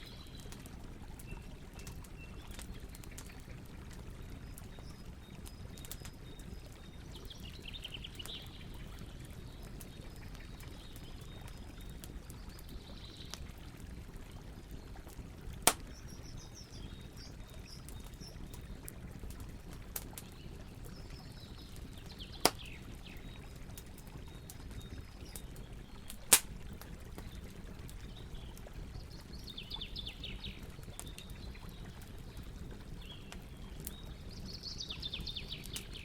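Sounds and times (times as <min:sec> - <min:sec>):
birds chirping faintly: 0:00.0 - 0:13.5, 0:14.2 - 0:36.0
campfire crackling: 0:00.0 - 0:36.0
sharp fire pops: 0:15.6 - 0:16.0, 0:22.4 - 0:22.8, 0:26.1 - 0:26.7.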